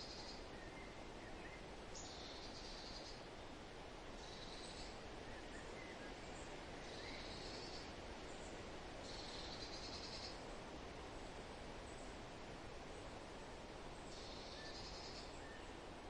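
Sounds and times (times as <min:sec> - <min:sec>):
faint bird chirps: 0:00.0 - 0:03.3, 0:04.2 - 0:10.4, 0:14.0 - 0:15.8
wind rustling: 0:00.0 - 0:16.0.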